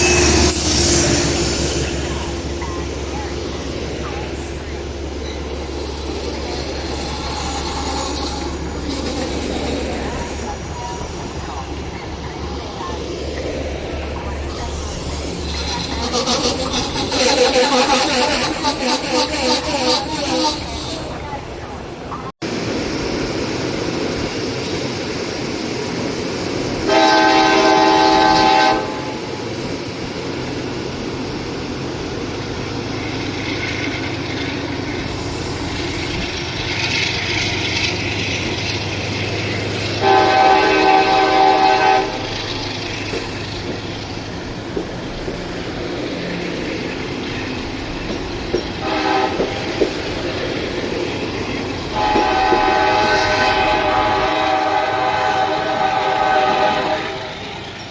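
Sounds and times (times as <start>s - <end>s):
train rumbling on tracks: 0.0s - 57.9s
wheels clicking over rail joints: 2.0s - 22.3s, 29.8s - 54.2s
train horn blasts: 26.8s - 29.3s, 40.0s - 42.6s, 48.8s - 49.7s, 51.9s - 57.6s.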